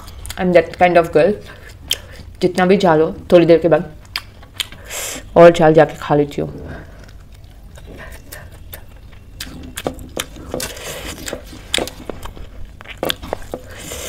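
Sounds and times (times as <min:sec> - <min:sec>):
close-up chewing: 0:00.0 - 0:02.4, 0:04.0 - 0:04.9, 0:06.8 - 0:14.0.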